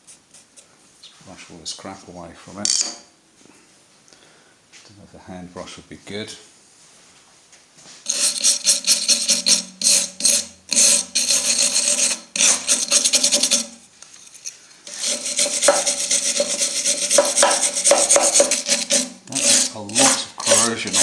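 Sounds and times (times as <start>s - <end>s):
brush scrubbing metal: 8.0s - 13.8s, 14.9s - 21.0s.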